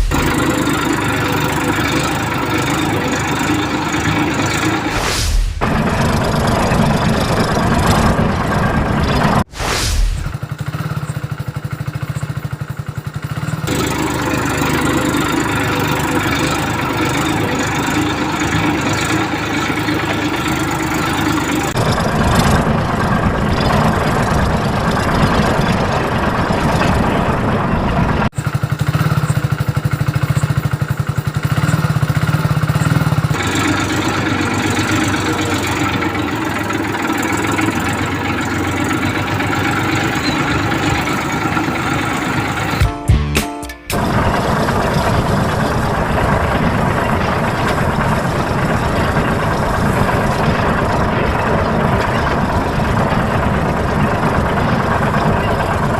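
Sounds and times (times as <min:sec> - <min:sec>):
tractor engine idling: 0:00.0 - 0:55.9.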